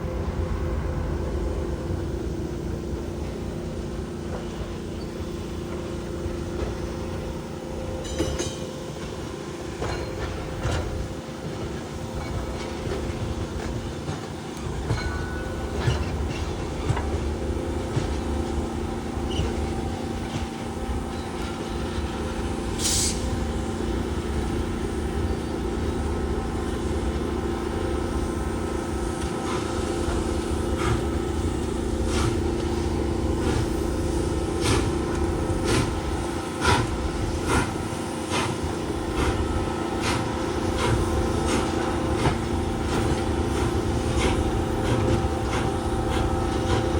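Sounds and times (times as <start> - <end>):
train cars rumbling: 0.0 - 46.9.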